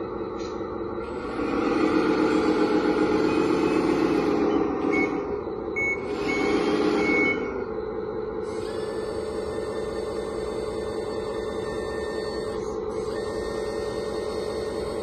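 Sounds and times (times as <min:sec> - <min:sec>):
simulated diesel engine running: 0:00.0 - 0:15.0
short reversing beeps: 0:03.2 - 0:14.3.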